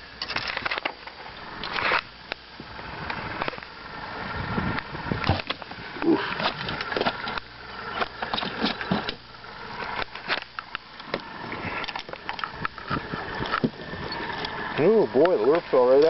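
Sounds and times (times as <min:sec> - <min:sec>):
knocking and rattling in a boat: 0:08.2 - 0:09.2.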